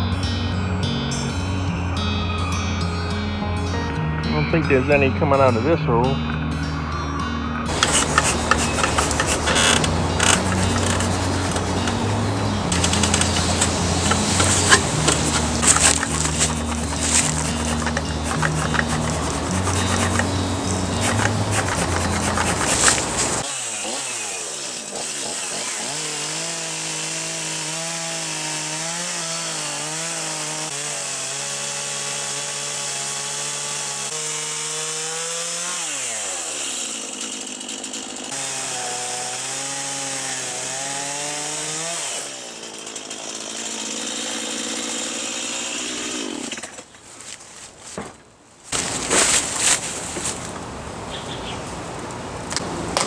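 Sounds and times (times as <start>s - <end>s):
chainsaw cutting tree trunk: 7.7s - 47.0s, 48.7s - 50.8s.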